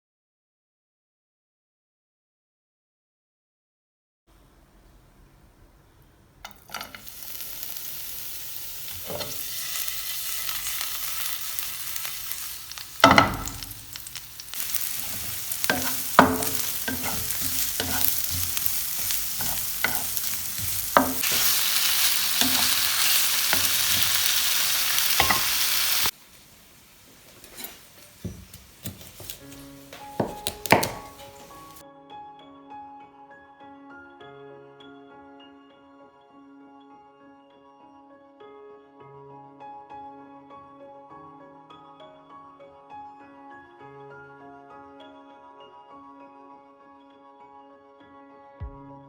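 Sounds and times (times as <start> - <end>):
food sizzling in a pan: 6.4 - 31.8
utensil scraping a pan: 6.5 - 7.8, 8.6 - 26.1, 27.1 - 31.8.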